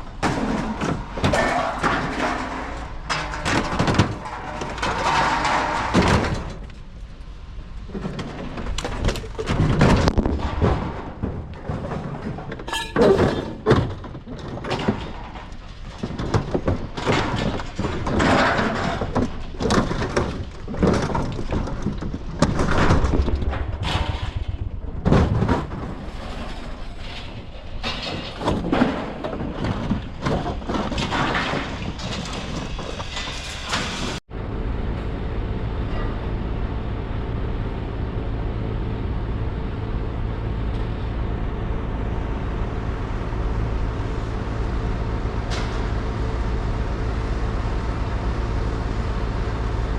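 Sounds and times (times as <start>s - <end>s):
banging and clattering: 0.0s - 6.8s, 7.9s - 34.2s
truck engine droning: 34.2s - 49.9s.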